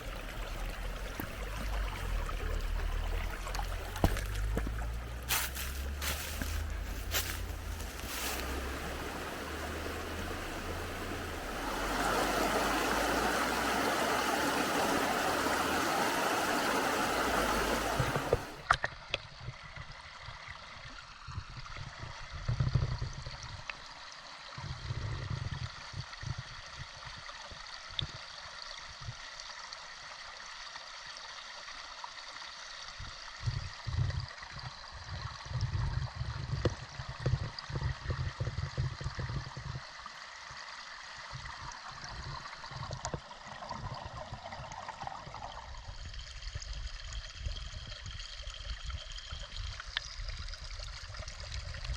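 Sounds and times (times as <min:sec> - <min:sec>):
low rumbles: 0:00.0 - 0:18.7
stream rushing over rocks: 0:00.0 - 0:18.7.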